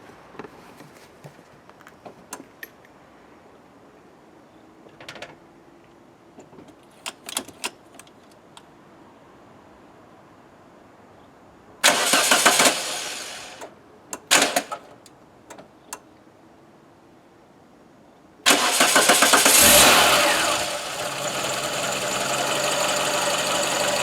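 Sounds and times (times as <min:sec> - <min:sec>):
car engine cranking: 0:11.8 - 0:13.6, 0:14.3 - 0:14.8, 0:18.5 - 0:24.0.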